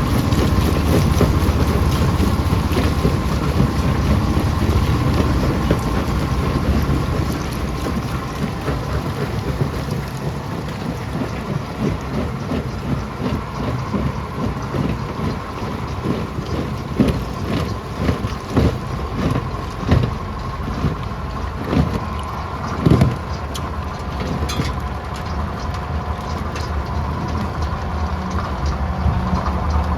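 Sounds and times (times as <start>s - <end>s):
rock crusher droning: 0.0s - 29.9s
rocks knocking inside crusher: 11.5s - 22.1s.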